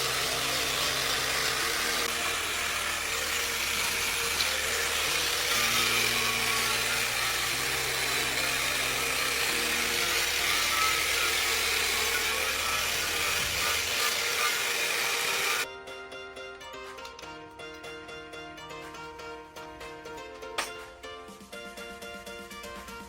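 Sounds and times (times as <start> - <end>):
machine running with hiss and hum: 0.0 - 15.6.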